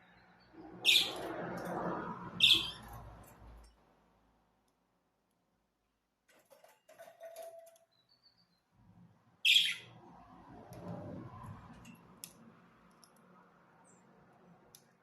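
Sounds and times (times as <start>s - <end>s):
budgerigars chirping: 0.8s - 1.2s, 2.4s - 2.8s, 9.5s - 9.9s
sharp high-pitched bird call: 0.8s - 1.2s, 2.4s - 2.9s, 9.4s - 10.0s.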